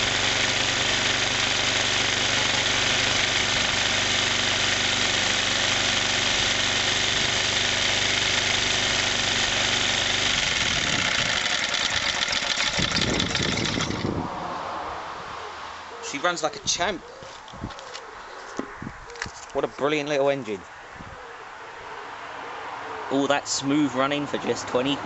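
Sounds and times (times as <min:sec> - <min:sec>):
single-cylinder engine running: 0:00.0 - 0:14.2.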